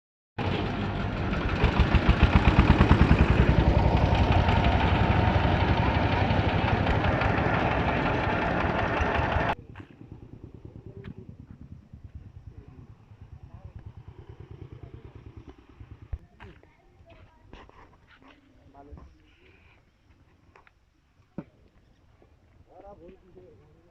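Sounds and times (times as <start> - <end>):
diesel engine thumping: 0.4 - 9.8.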